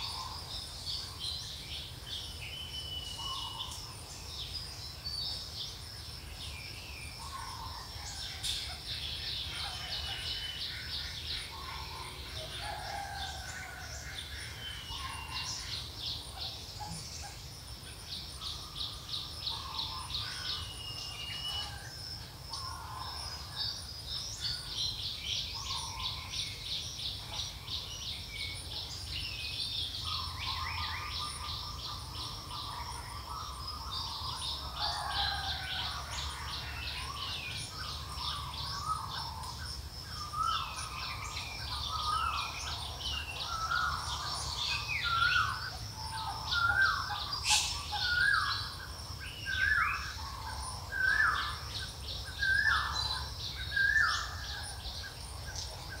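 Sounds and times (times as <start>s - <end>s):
birds twittering: 0.0s - 56.0s
low bird call: 46.6s - 48.7s.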